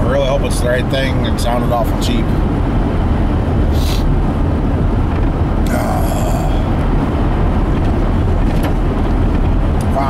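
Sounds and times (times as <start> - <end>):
vehicle road and engine rumble: 0.0 - 10.0
brief hissing: 3.7 - 4.1.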